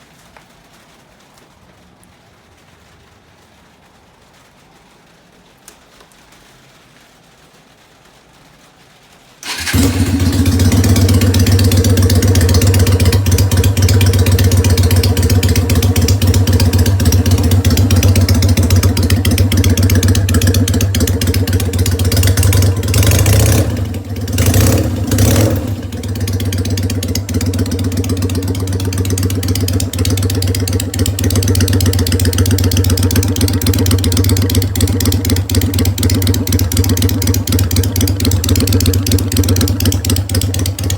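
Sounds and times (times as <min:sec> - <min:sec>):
motorcycle engine starting and running: 0:09.4 - 0:40.9.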